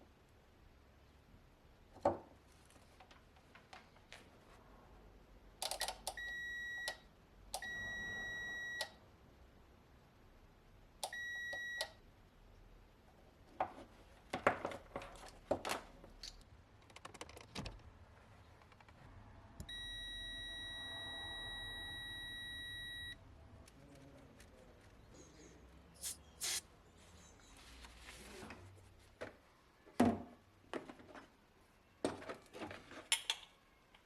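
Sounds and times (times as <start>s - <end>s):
electronic beep: 7.6s - 8.9s, 19.7s - 23.2s.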